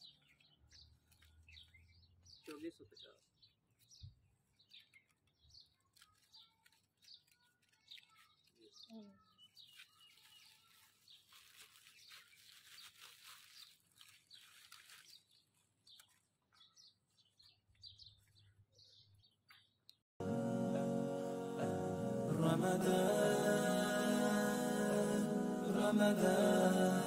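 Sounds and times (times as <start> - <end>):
faint birds chirping: 0.0 - 20.0
plastic bags rustling: 0.9 - 1.8, 4.2 - 16.4.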